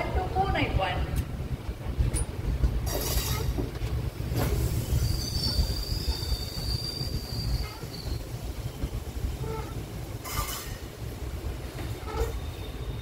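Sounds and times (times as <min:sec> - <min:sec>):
train rumbling: 0:00.0 - 0:13.0
high wheel squeal: 0:04.8 - 0:08.3, 0:09.3 - 0:10.8, 0:12.0 - 0:13.0.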